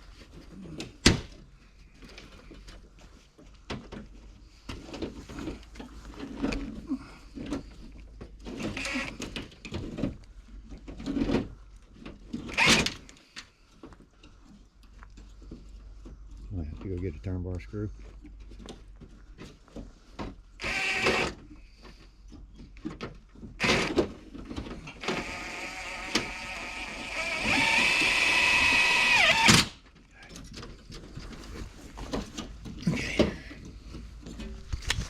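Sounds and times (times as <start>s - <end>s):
rustling of materials: 0.0s - 20.6s, 29.8s - 35.0s.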